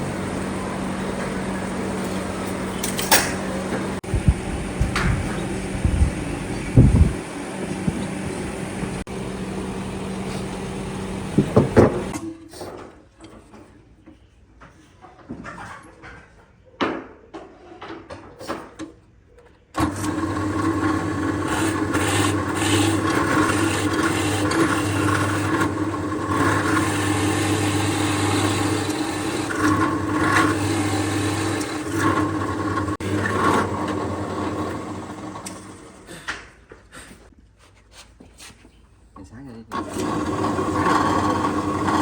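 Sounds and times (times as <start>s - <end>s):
power tool running on wood: 19.8s - 36.1s, 39.7s - 42.0s.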